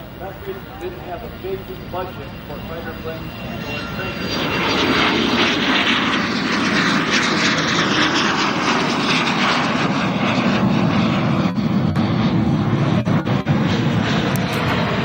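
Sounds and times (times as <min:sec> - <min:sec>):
jet engines flying past: 0:00.0 - 0:15.0.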